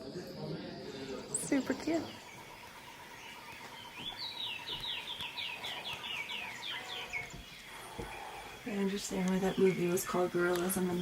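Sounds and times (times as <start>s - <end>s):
bird whistling song: 1.3s - 8.3s.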